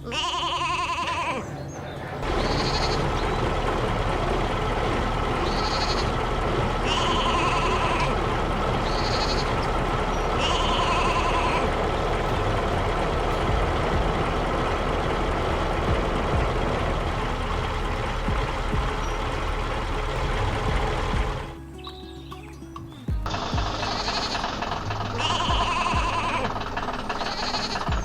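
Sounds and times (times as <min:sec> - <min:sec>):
sheep bleating: 0:00.0 - 0:03.5, 0:04.8 - 0:16.5, 0:23.3 - 0:28.0
tractor engine rumble: 0:00.0 - 0:28.0.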